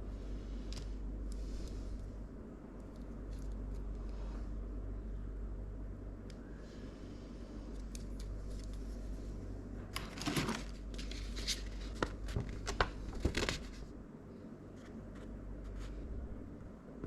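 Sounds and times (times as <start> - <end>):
low steady hum: 0.0 - 17.0
packaging clicks and rustles: 9.9 - 13.8.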